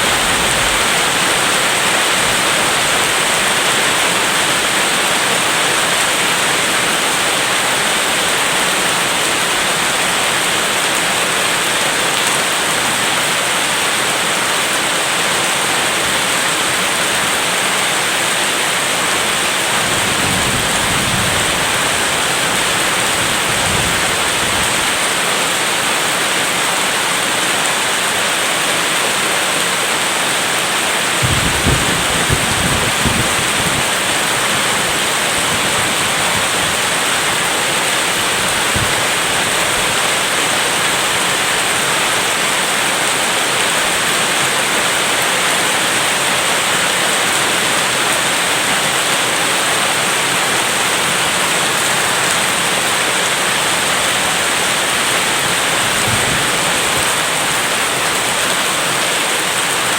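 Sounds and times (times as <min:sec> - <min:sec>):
heavy rain: 0:00.0 - 0:59.9
thunder rumbling: 0:19.2 - 0:25.0, 0:31.1 - 0:40.4, 0:55.3 - 0:57.6.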